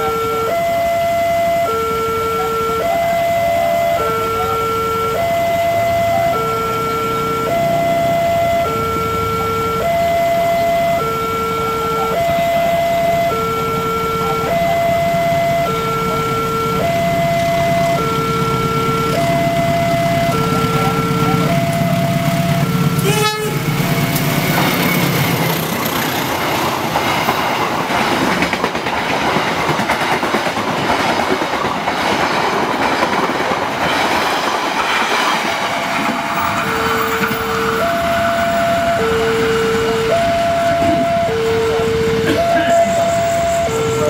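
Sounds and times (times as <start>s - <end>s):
diesel locomotive rumble: 0.0s - 44.0s
passenger train rushing past: 0.0s - 44.0s
two-tone crossing alarm: 0.0s - 44.0s.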